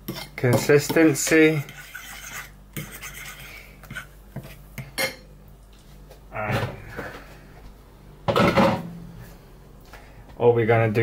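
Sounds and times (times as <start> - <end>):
spoon scraping a bowl: 0.0 - 5.2
steady low hum: 0.0 - 11.0.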